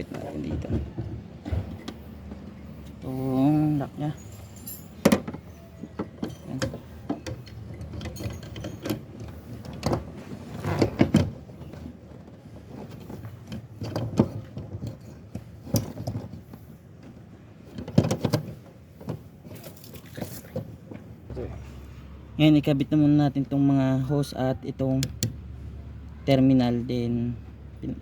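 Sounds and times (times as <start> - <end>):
hands fitting fuel pump clicks and knocks: 5.0 - 10.1, 24.9 - 25.4.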